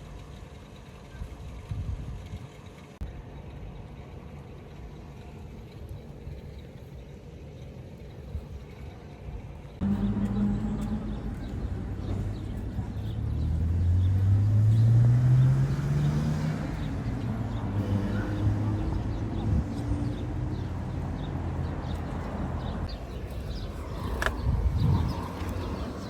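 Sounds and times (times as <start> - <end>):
steady outdoor rumble: 0.0 - 26.0
passing vehicle engine hum: 9.6 - 26.0.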